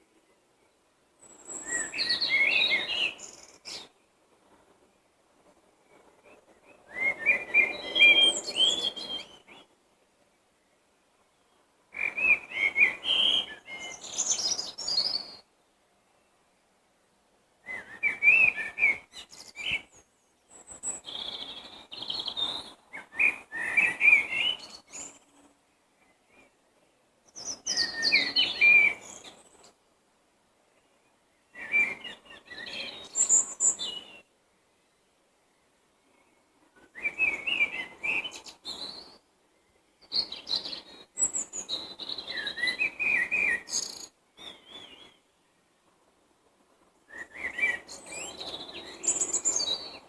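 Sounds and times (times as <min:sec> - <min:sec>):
songbird chirping and warbling: 0:00.2 - 0:04.1, 0:10.6 - 0:15.5, 0:17.6 - 0:29.8, 0:34.9 - 0:45.6, 0:47.1 - 0:50.0.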